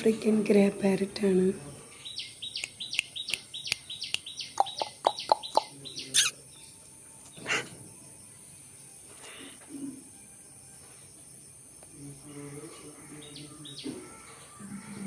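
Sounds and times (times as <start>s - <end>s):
parrot chirping: 2.2s - 6.4s.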